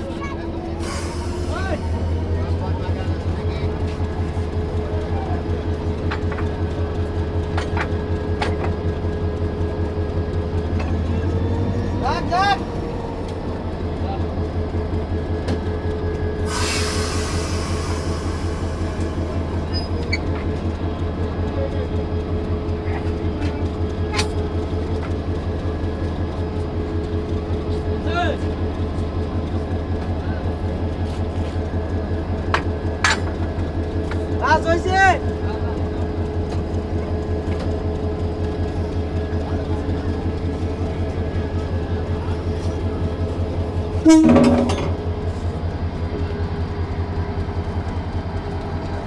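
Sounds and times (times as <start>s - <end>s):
locomotive rumble and hum: 0.0s - 49.0s
constant hum: 41.4s - 45.8s.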